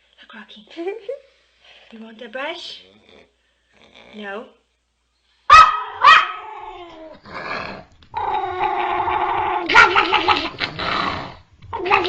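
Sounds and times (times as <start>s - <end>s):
dog growling: 2.6s - 4.5s, 5.8s - 12.0s
dog barking: 5.5s - 6.4s, 9.7s - 10.2s.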